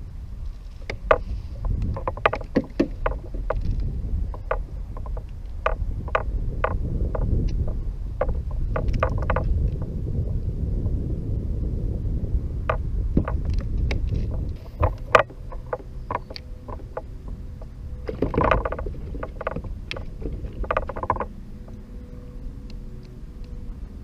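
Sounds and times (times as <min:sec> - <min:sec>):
wind rumble on microphone: 0:00.0 - 0:24.0
knocks and clicks of gear handling: 0:00.8 - 0:09.5, 0:12.7 - 0:21.8.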